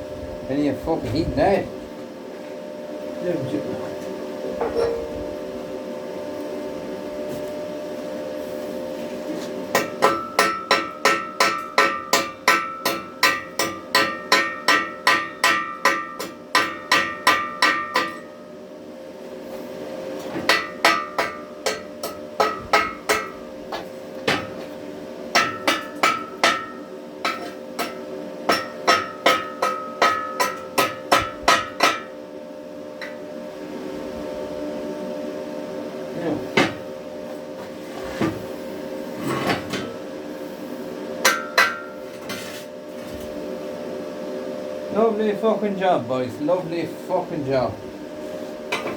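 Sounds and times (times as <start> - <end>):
hammer striking metal: 9.7 - 18.2, 20.5 - 23.4, 25.3 - 32.1, 41.2 - 42.0.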